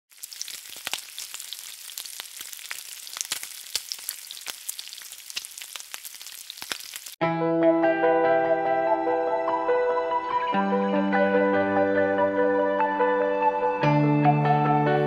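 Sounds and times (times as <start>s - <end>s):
food sizzling in oil: 0.1s - 7.2s
oil crackling and popping: 0.1s - 7.2s.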